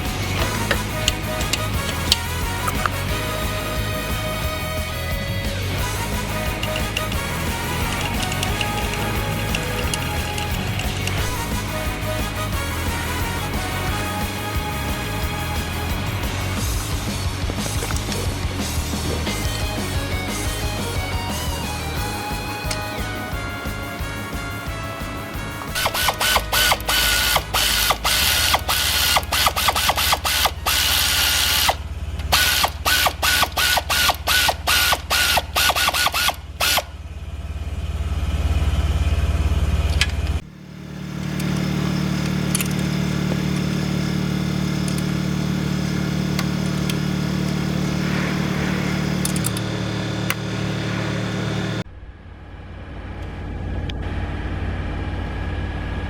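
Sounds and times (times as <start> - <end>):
rapid mechanical clicking: 0.0 - 20.6, 25.7 - 36.9, 39.8 - 51.8
low machine hum: 0.0 - 35.3, 36.3 - 56.0.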